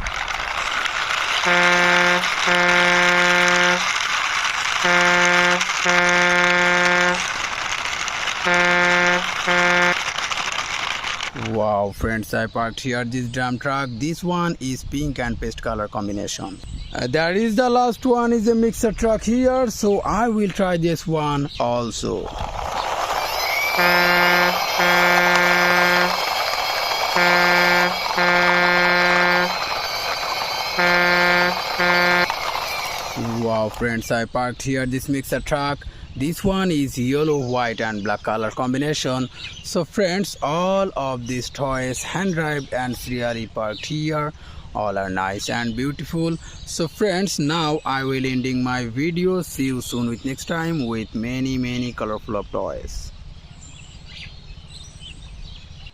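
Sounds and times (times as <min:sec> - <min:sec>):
constant rushing hiss: 0:00.0 - 0:12.4, 0:19.3 - 0:37.5
truck horn honking: 0:01.3 - 0:07.3, 0:08.4 - 0:10.2, 0:23.4 - 0:33.6
steady hiss: 0:23.0 - 0:33.9.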